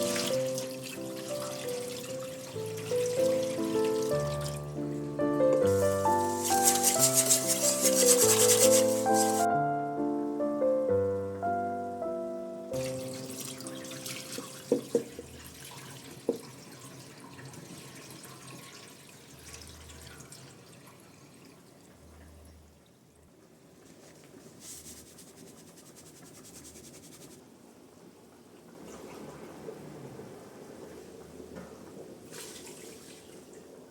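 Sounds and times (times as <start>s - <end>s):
tap water running into sink: 0.0s - 4.6s, 12.8s - 22.0s.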